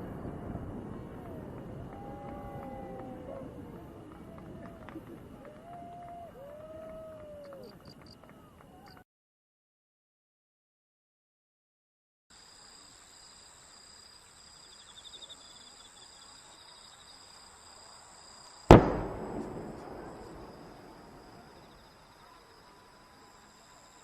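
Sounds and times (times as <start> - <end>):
insects chirping: 12.4 - 24.0
firework bang echoing: 18.7 - 22.0.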